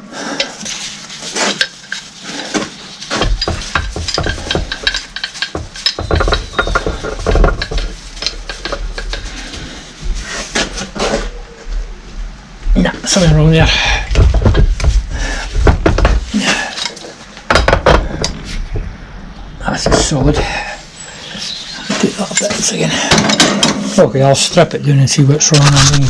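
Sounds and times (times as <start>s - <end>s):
metallic clinks and scraping: 0.4s - 9.9s.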